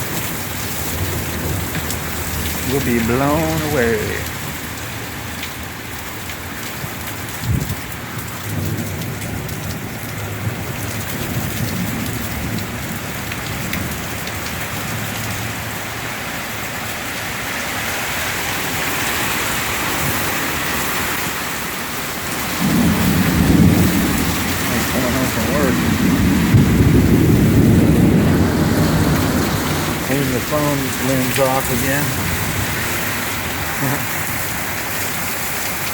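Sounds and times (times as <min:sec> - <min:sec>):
heavy rain pouring: 0:00.0 - 0:35.9
thunder rumbling: 0:22.2 - 0:34.4.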